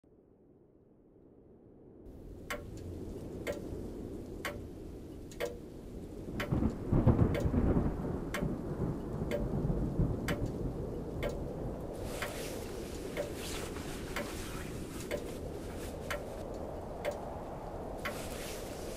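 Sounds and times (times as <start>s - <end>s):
clock ticking: 2.4s - 3.7s, 4.4s - 4.7s, 5.3s - 5.6s, 6.4s - 7.6s, 8.3s - 8.6s, 9.2s - 9.5s, 10.3s - 10.6s, 11.2s - 11.4s, 13.1s - 13.4s, 16.1s - 16.4s, 17.0s - 17.3s.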